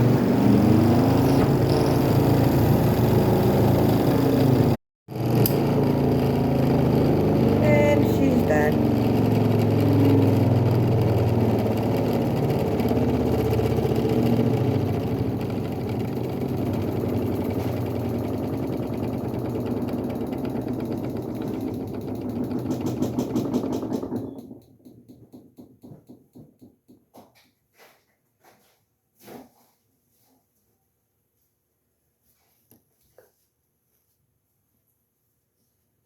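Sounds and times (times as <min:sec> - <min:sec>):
washer spin motor hum: 0:00.0 - 0:26.6.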